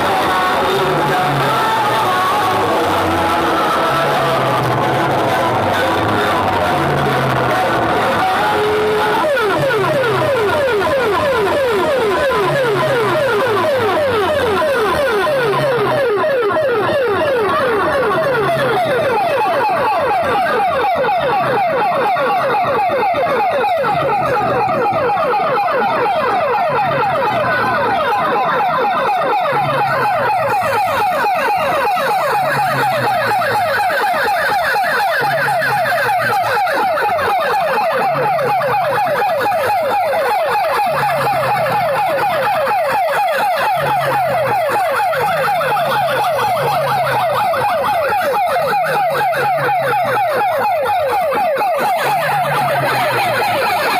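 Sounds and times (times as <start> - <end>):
siren-like rising sweeps: 0.0 - 53.9.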